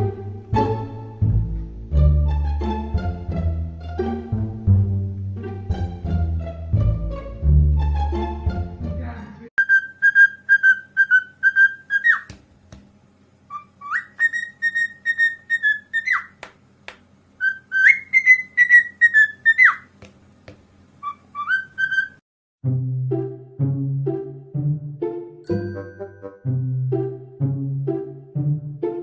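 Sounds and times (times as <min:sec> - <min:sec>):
parrot whistling: 0:09.6 - 0:12.3, 0:13.5 - 0:16.4, 0:17.4 - 0:19.9, 0:21.0 - 0:22.2.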